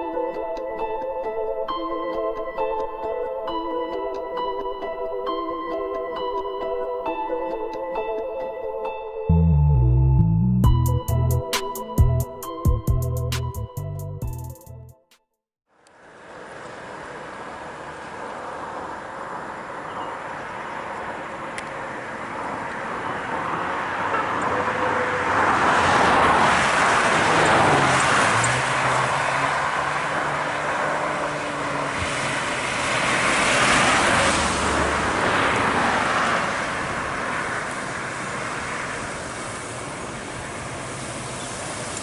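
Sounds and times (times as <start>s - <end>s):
road and tyre noise: 15.7s - 42.0s.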